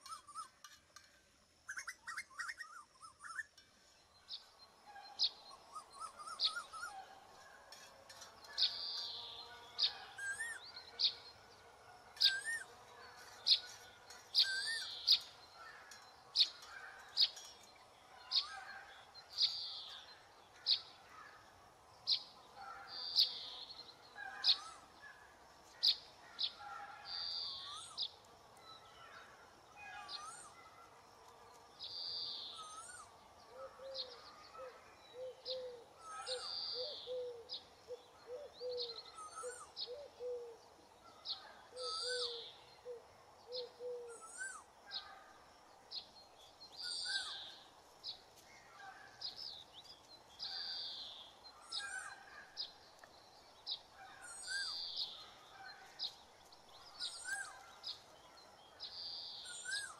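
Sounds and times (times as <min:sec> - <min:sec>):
birds chirping and whistling: 0:00.0 - 0:00.8, 0:05.1 - 0:07.0, 0:07.7 - 0:10.7, 0:12.2 - 0:17.7, 0:30.1 - 0:30.6, 0:31.9 - 0:33.1, 0:38.3 - 0:40.4, 0:41.8 - 0:42.6, 0:43.5 - 0:45.0, 0:46.7 - 0:47.6, 0:53.7 - 0:55.2, 0:56.9 - 0:58.0, 0:58.8 - 0:59.9.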